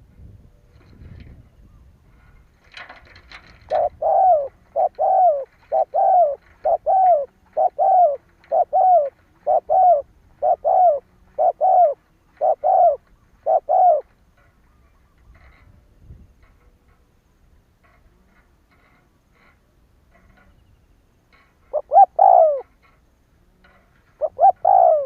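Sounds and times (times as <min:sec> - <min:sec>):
dove cooing: 0:03.4 - 0:15.6, 0:21.6 - 0:23.0, 0:23.7 - 0:25.0
scratchy rustle: 0:14.1 - 0:20.7.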